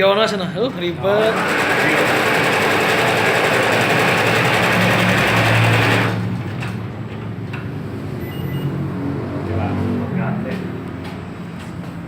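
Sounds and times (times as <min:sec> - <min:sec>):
embroidery machine clattering: 0:01.1 - 0:06.8.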